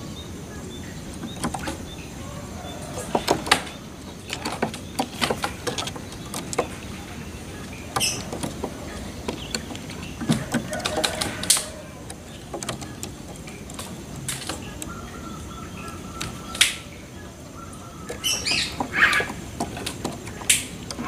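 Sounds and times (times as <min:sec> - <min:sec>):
birds chirping and squawking: 0:00.0 - 0:21.0
sharp clicks: 0:07.6 - 0:15.0.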